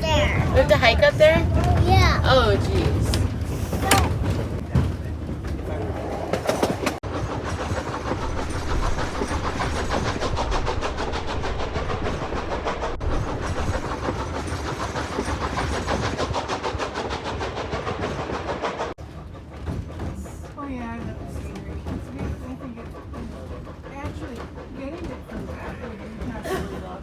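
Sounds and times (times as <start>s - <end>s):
train low rumble: 0.0s - 27.0s
train wheels clicking on rails: 0.0s - 27.0s.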